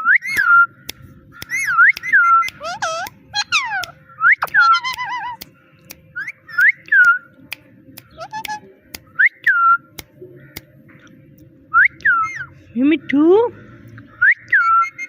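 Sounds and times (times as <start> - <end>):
sharp clicks: 0.3 - 12.1
parrot whistling: 1.4 - 5.4, 8.2 - 8.6, 14.2 - 15.0
parrot warbling chatter: 1.4 - 5.5, 8.1 - 8.6.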